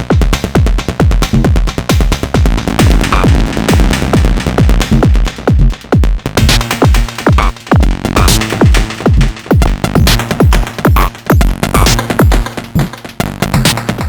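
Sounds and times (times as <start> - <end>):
fast hi-hat and percussion: 0.0 - 14.0
kick drum: 0.0 - 14.0.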